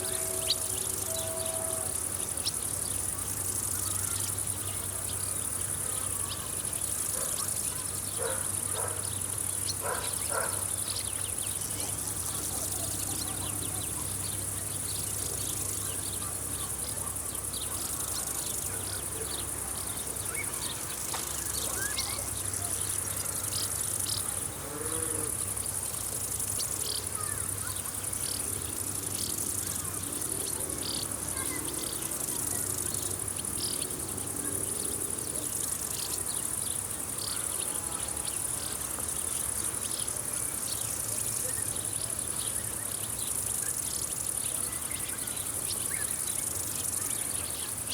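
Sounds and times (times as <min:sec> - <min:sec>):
crickets chirping: 0:00.0 - 0:47.9.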